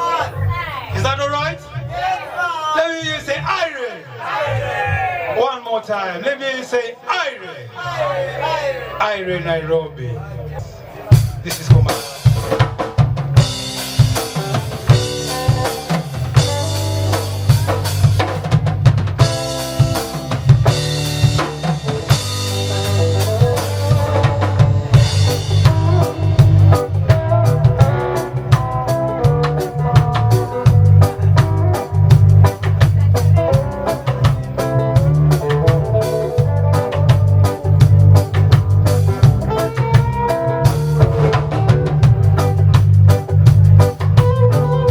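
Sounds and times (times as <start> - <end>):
reggae band playing: 0.0 - 44.9
heavy bass line: 8.0 - 44.9
drum kit ticking: 11.1 - 44.9.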